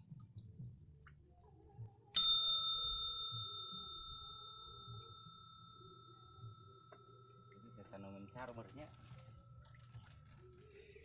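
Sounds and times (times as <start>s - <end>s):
small metal bell ringing: 2.2s - 9.7s.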